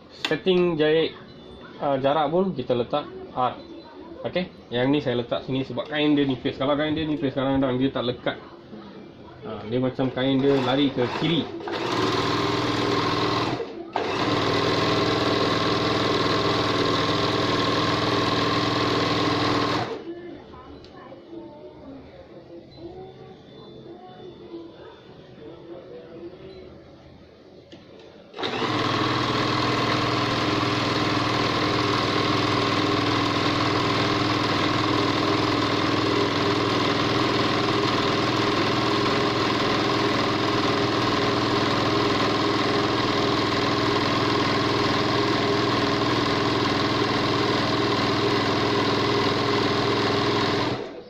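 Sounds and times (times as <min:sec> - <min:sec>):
overlocker sewing machine running: 0:10.2 - 0:20.1, 0:28.3 - 0:51.0.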